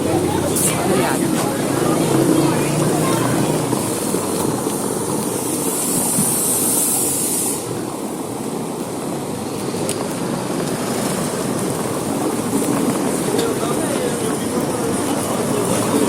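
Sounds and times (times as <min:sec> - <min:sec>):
rushing street noise: 0:00.0 - 0:16.0
high hiss: 0:03.3 - 0:08.1.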